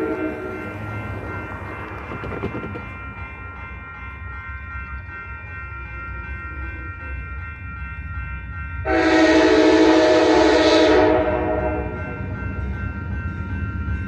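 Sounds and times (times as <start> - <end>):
locomotive horn blast: 0.0 - 0.6, 8.9 - 12.0
crossing signal ringing: 0.0 - 14.0
train rumbling past: 0.0 - 14.0.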